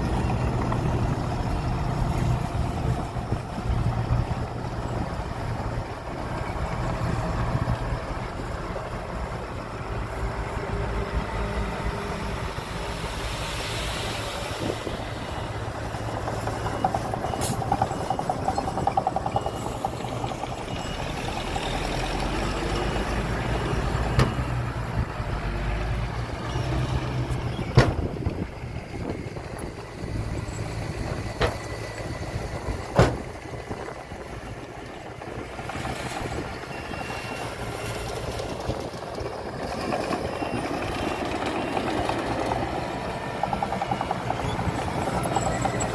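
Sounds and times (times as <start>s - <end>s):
heavy machinery diesel engines: 0.0s - 45.9s.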